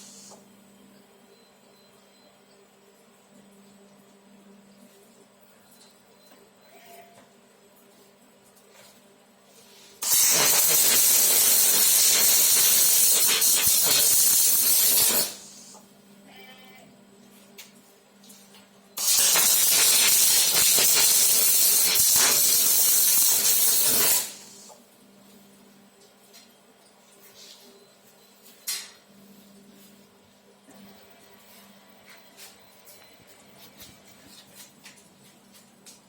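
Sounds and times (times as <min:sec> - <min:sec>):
welding arc hissing and crackling: 0:00.0 - 0:00.4, 0:10.0 - 0:15.8, 0:19.0 - 0:24.8.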